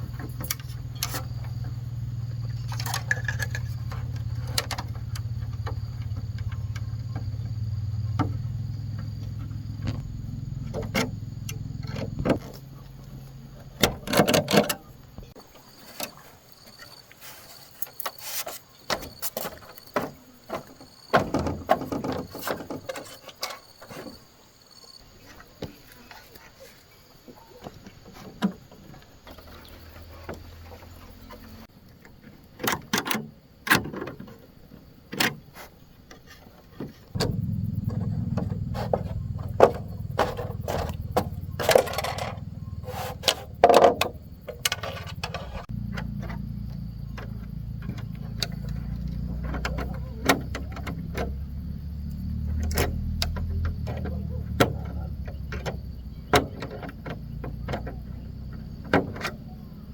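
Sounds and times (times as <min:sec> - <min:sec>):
scattered knocks and clicks: 0:36.8 - 0:51.3
low motor hum: 0:37.2 - 0:59.9.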